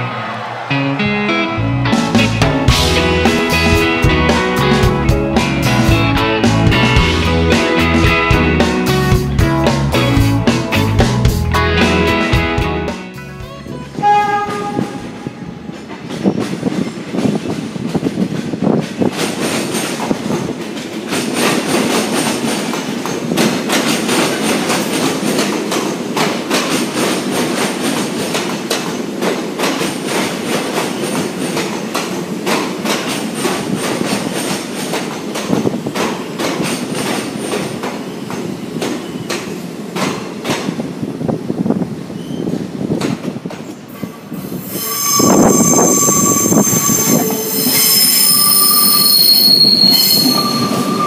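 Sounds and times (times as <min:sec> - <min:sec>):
train wheels clicking on rail joints: 0:14.3 - 0:51.0
faint wheel squeal: 0:42.2 - 0:42.6, 0:44.6 - 0:51.0.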